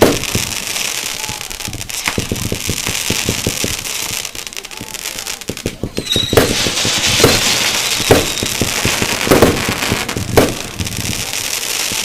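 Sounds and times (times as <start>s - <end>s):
firework crackling: 0.0s - 12.0s
firework shell bursts: 5.8s - 10.8s.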